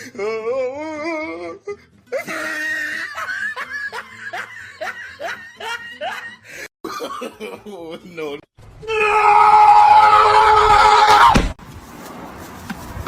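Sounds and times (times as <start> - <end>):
person laughing: 2.1 - 8.1.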